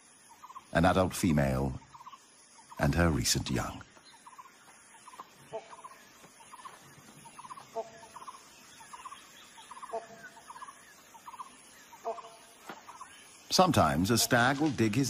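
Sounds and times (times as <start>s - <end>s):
bird clucking notes: 4.2s - 13.1s.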